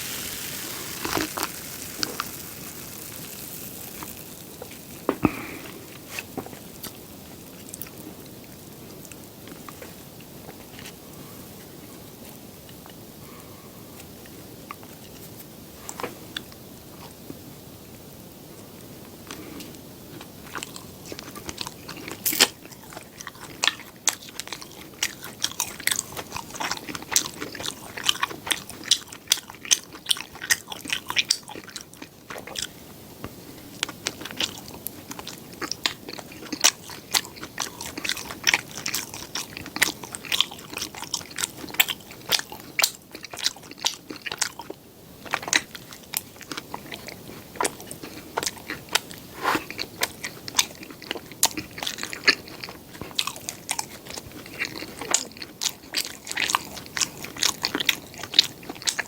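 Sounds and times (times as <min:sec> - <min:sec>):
chewing bread: 0:00.0 - 0:17.4, 0:18.9 - 0:59.0.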